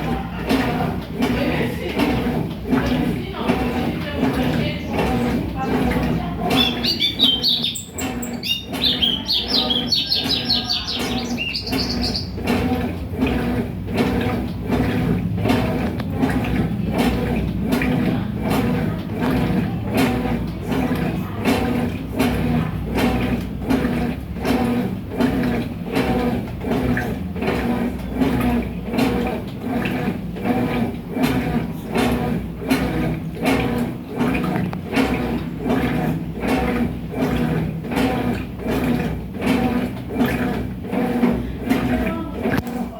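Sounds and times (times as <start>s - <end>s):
washing machine agitating: 0.0s - 42.9s
small bird chirping and trilling: 6.5s - 12.4s.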